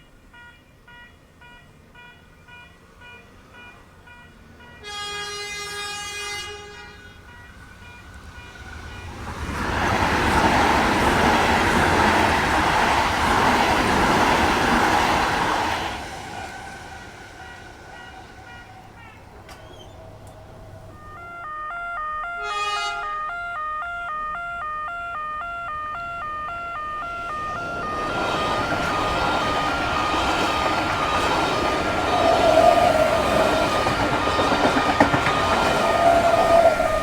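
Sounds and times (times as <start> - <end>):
level crossing warning bells: 0.0 - 37.0
train rushing past: 2.8 - 37.0
train horn blast: 4.3 - 9.3, 15.9 - 31.2.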